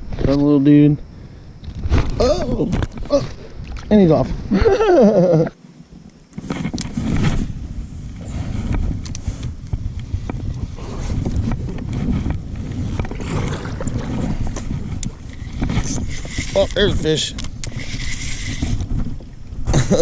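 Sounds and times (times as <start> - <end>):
wind rumbling on microphone: 0.0 - 20.0
water moving around kayak: 1.6 - 4.9, 5.7 - 20.0.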